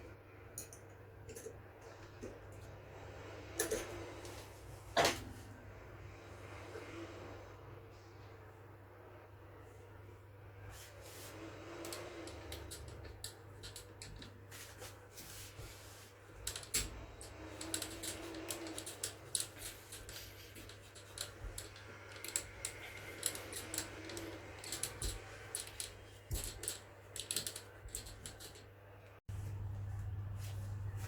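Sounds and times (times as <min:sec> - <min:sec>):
low hum: 0:29.3 - 0:31.0.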